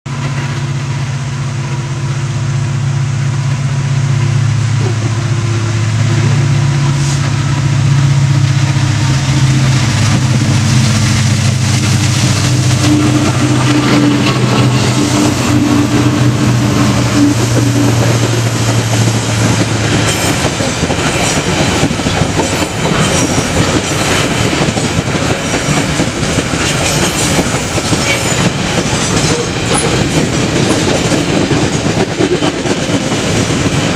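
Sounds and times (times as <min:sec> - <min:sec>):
diesel locomotive engine hum: 0:00.1 - 0:33.9
train wagons clattering over rails: 0:05.9 - 0:33.9.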